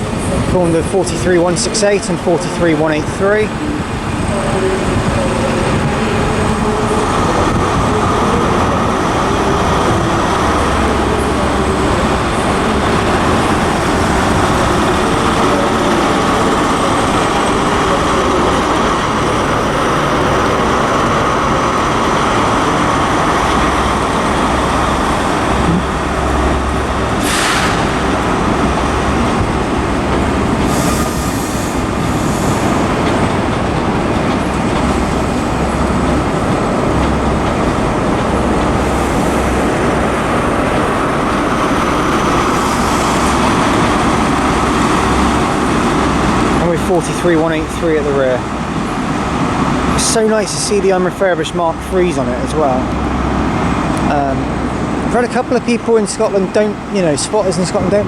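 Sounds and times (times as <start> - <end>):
diesel train engine drone: 0.0 - 58.0
short hiss: 27.2 - 27.8.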